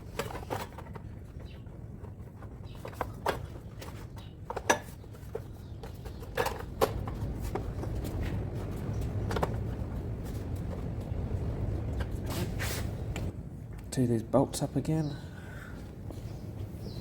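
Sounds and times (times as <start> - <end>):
low steady rumble: 5.6 - 17.0.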